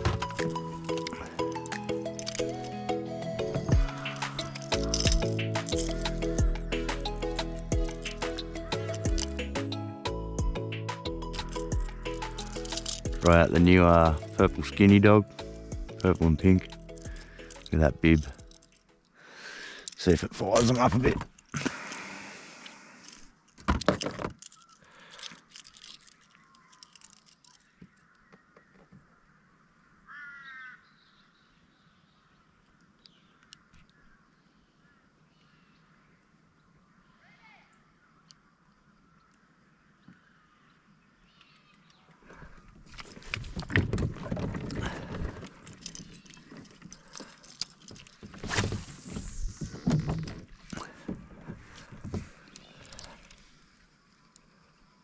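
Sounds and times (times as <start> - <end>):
crow cawing: 30.0 - 31.0
knocks and clatter on kayak: 43.3 - 45.7.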